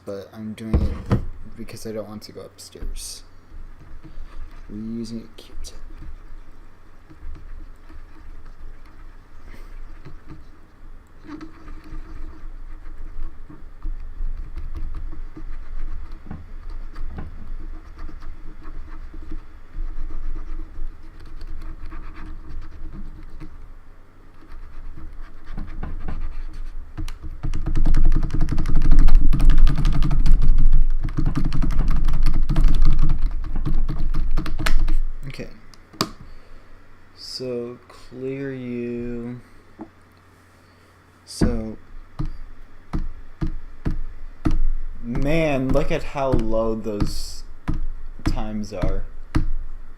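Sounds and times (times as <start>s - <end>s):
cotton swab rubbing keyboard: 3.0s - 23.6s, 24.3s - 35.1s, 41.4s - 49.6s.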